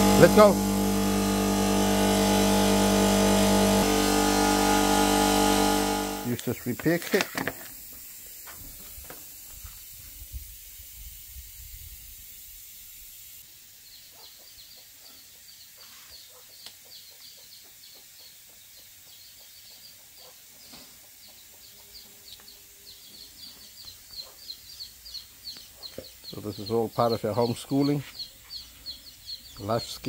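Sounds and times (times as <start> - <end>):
birds chirping: 19.8 - 30.0.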